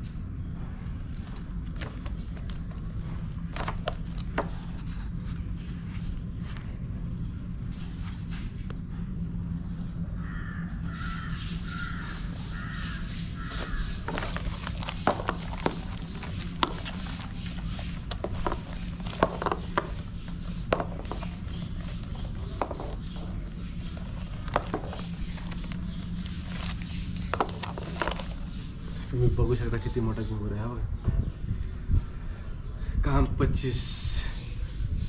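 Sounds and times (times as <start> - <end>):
steady low hum: 0.0 - 35.0
bird calling: 10.0 - 32.9.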